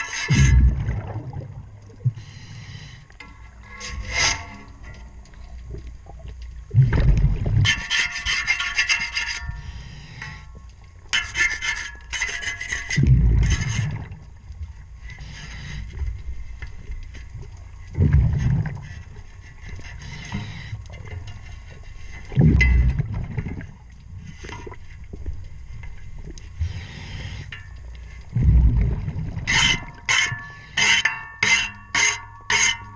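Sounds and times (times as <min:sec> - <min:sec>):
underwater rasping on propeller: 0:00.0 - 0:32.9
low rumbling burst: 0:00.3 - 0:01.7, 0:28.3 - 0:29.5.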